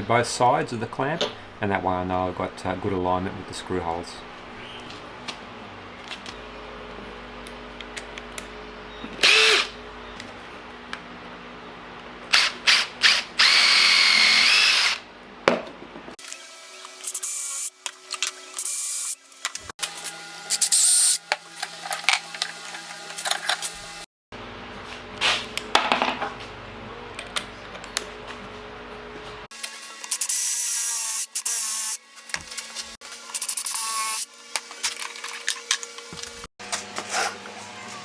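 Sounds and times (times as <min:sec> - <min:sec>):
power drill whining through wood: 0:09.2 - 0:09.7, 0:12.4 - 0:15.0, 0:29.6 - 0:32.0.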